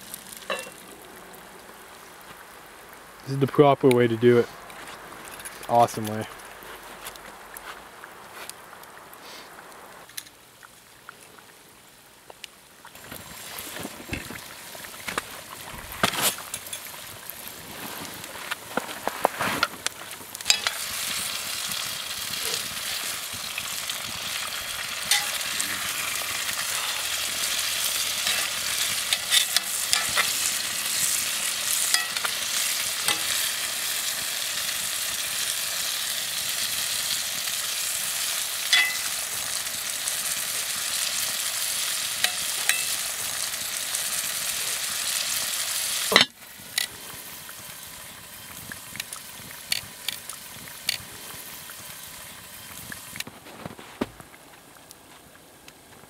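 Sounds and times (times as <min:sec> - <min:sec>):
food sizzling in oil: 0:00.0 - 0:03.2, 0:12.9 - 0:53.8
fire crackling: 0:00.0 - 0:56.0.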